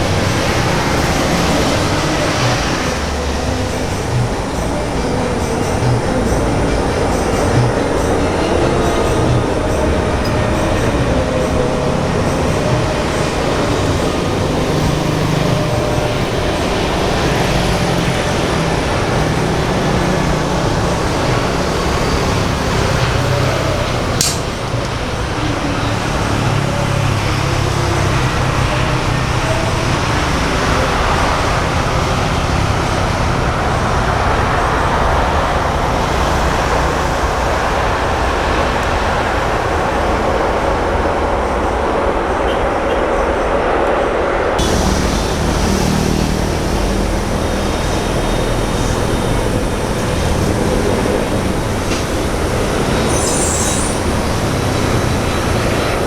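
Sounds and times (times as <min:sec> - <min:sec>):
loud engine rumble: 0:00.0 - 0:56.0
sharp click: 0:24.2 - 0:24.5.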